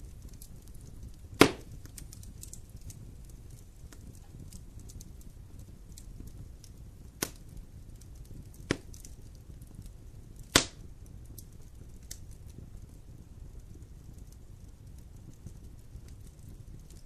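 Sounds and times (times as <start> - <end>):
campfire crackling: 0.0 - 17.0
sharp loud pops: 1.4 - 1.7, 10.5 - 10.8.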